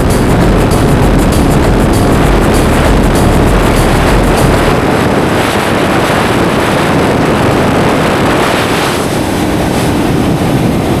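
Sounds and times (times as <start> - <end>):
motorcycle engine running: 0.0 - 4.7
wind noise on microphone: 0.0 - 11.0.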